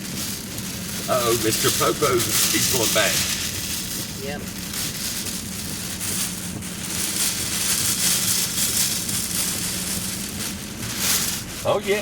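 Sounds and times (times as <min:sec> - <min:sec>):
low engine hum: 0:00.0 - 0:12.0
road noise: 0:00.0 - 0:12.0
wind and rain hiss: 0:00.0 - 0:12.0.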